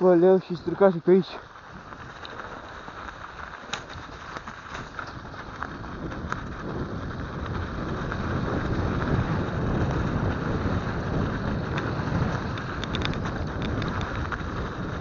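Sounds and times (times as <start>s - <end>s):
wind rushing over microphone: 0.0s - 15.0s
small clicks and rattles: 1.2s - 6.6s, 11.6s - 14.8s.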